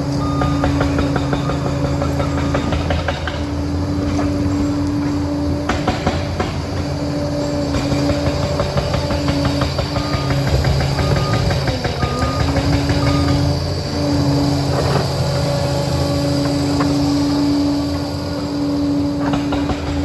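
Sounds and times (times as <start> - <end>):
reversing alarm beeps: 0.0 - 3.4, 7.8 - 18.0
bulldozer engine running: 0.0 - 20.0
drive whine: 0.0 - 20.0
steel tracks clanking: 0.0 - 20.0.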